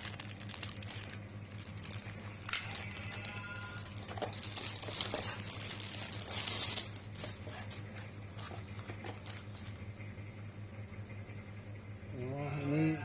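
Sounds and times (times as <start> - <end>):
packaging crinkling: 0.0 - 7.4
low electrical hum: 0.0 - 13.0.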